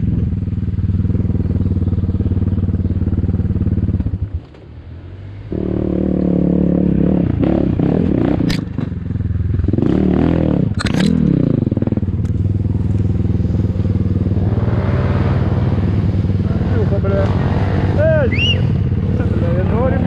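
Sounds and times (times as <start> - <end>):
dirt bike engine revving: 5.4 - 20.0.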